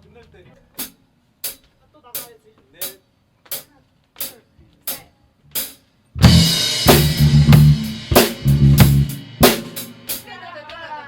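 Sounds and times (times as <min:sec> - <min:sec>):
hard drum hits: 0:06.2 - 0:10.2
rock band playing: 0:06.2 - 0:10.3.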